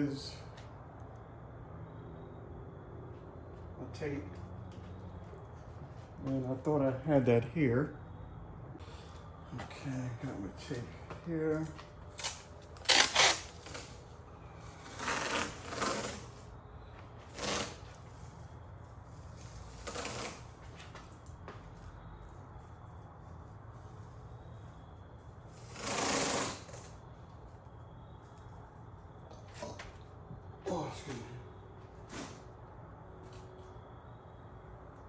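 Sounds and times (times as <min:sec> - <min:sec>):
tape ripping off roll: 0:12.1 - 0:14.1, 0:14.7 - 0:16.5, 0:17.3 - 0:18.0, 0:19.4 - 0:20.7, 0:25.6 - 0:26.9.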